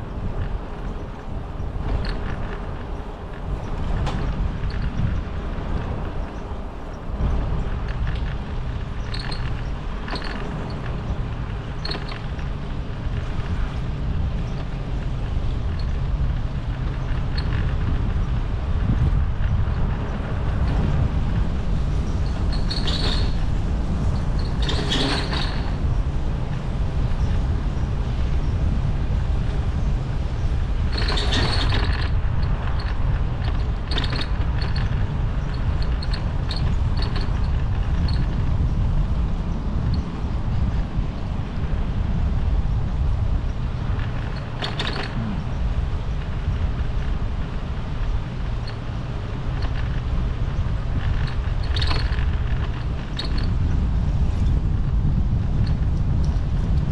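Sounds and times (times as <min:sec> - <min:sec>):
wind buffeting microphone: 0:00.0 - 0:56.9
short high squeaks: 0:22.3 - 0:23.5, 0:24.4 - 0:25.8, 0:30.9 - 0:33.0, 0:44.0 - 0:45.8.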